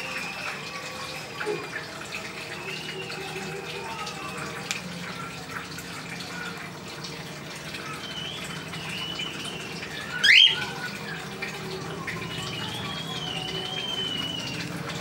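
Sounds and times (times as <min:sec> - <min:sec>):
wavering bird whistles: 0:07.9 - 0:10.7, 0:12.3 - 0:14.8.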